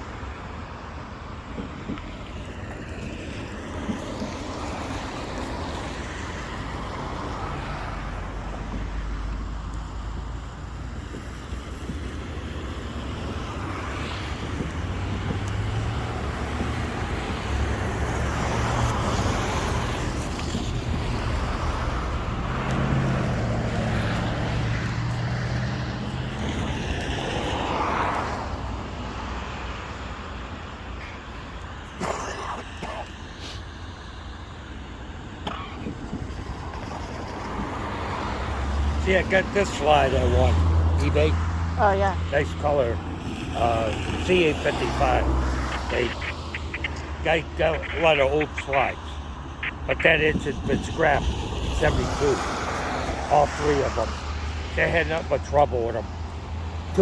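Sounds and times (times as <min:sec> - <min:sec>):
outdoor background noise: 0:00.0 - 0:57.0
vehicle engine hum: 0:01.5 - 0:32.0, 0:33.1 - 0:57.0.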